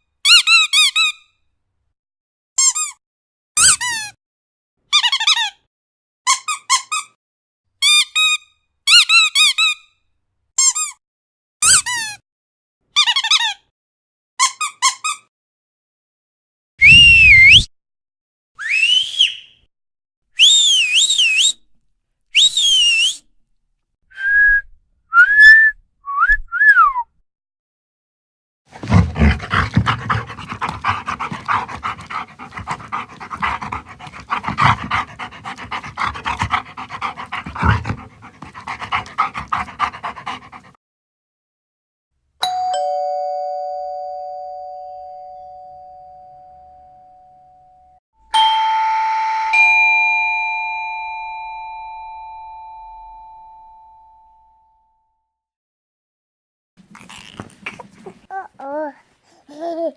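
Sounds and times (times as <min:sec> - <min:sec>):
two-note doorbell ding-dong: 0:42.4 - 0:47.6, 0:48.4 - 0:54.6.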